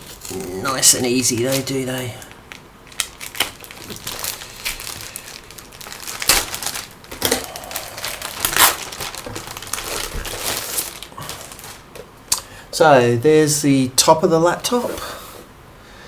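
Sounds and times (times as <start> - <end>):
plastic packaging crinkling: 0.0 - 12.1.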